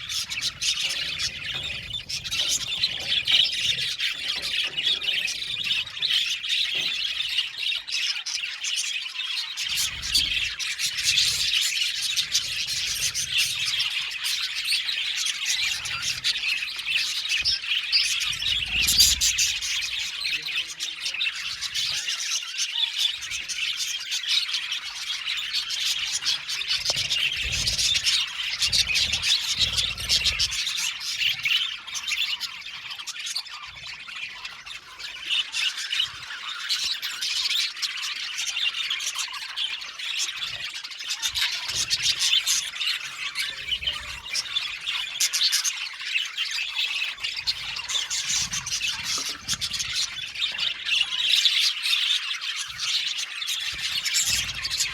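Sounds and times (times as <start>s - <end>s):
bird squawks: 0.0s - 54.9s
budgerigars chirping and chattering: 0.0s - 54.9s.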